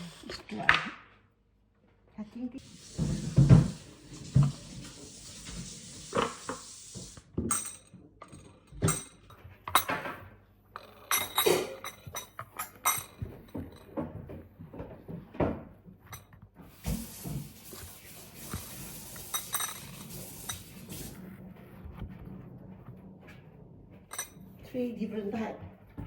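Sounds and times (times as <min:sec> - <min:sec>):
crockery and cutlery clinking: 0:07.4 - 0:14.4, 0:19.1 - 0:21.1, 0:24.0 - 0:24.5.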